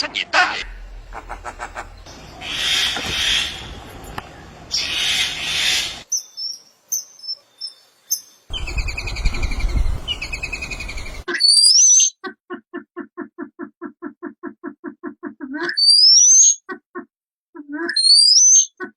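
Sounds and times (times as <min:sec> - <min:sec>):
songbird calls: 0:00.6 - 0:11.3.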